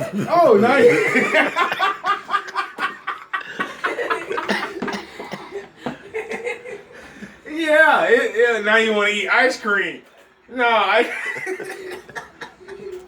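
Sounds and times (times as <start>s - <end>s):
people laughing: 0.0s - 7.3s, 11.0s - 13.0s.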